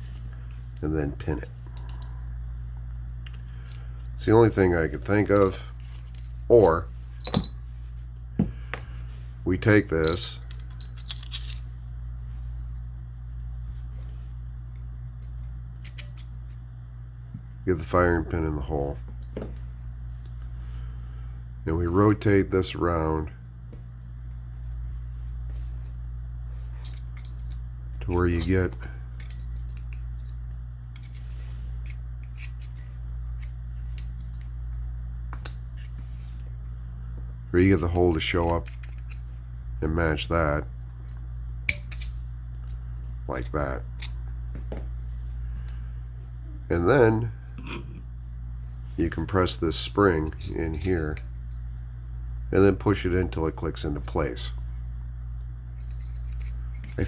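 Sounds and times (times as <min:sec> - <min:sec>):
low hum: 0:00.0 - 0:57.0
steel parts clicking and scraping: 0:09.9 - 0:11.7, 0:15.2 - 0:16.3, 0:26.7 - 0:34.6, 0:37.6 - 0:39.4, 0:40.9 - 0:44.2, 0:55.8 - 0:57.0.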